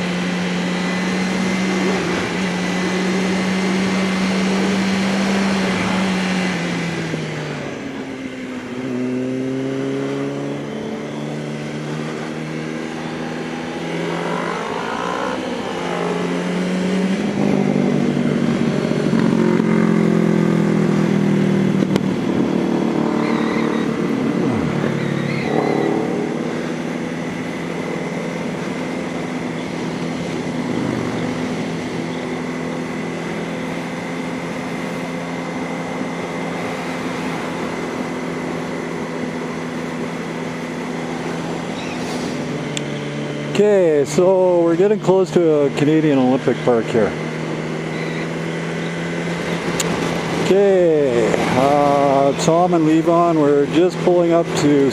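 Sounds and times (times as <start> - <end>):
motorcycle engines: 0.0 - 54.9
wind noise: 30.2 - 32.0.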